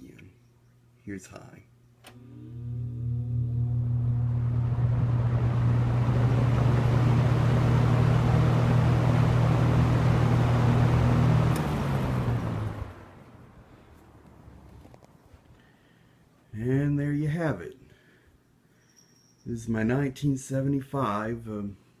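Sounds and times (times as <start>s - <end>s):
box fan motor hum: 2.0s - 13.6s
fan blades rushing air: 3.6s - 13.7s.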